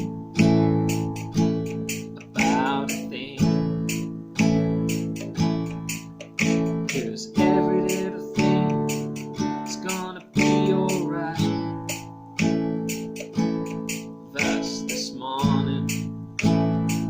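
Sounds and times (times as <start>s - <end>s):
acoustic guitar strummed slowly: 0.0s - 17.0s.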